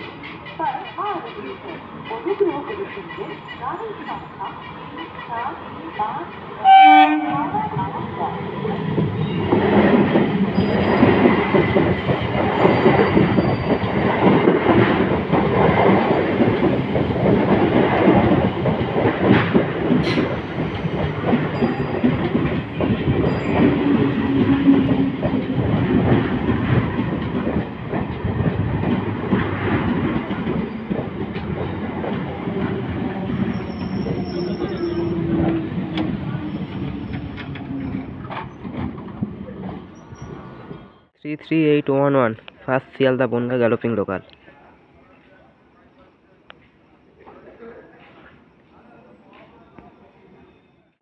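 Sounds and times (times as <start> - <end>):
train wheels clattering over rail joints: 9.0 - 40.4.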